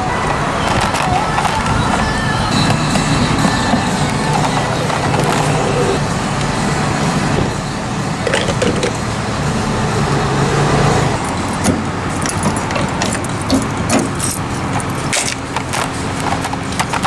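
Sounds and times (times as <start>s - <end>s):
motor vehicle engine humming: 0.0s - 17.0s.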